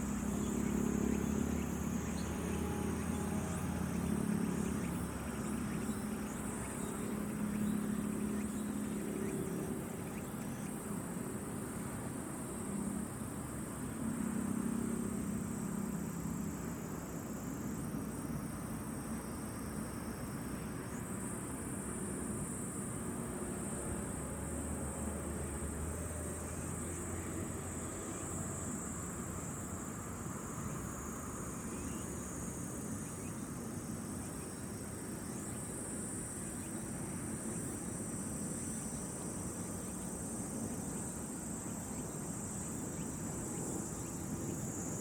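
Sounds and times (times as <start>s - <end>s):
insects chirring: 0.0s - 11.8s, 26.1s - 45.0s.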